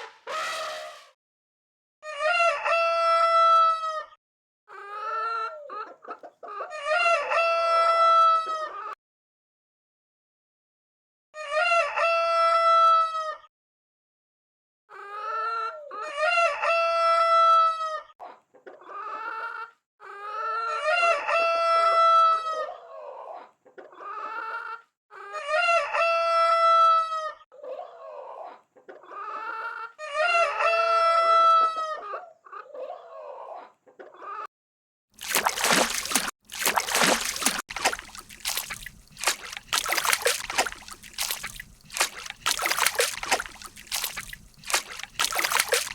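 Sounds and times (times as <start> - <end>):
chicken clucking: 5.5 - 7.5, 18.2 - 21.1, 23.3 - 24.8, 27.6 - 30.7, 31.8 - 34.4.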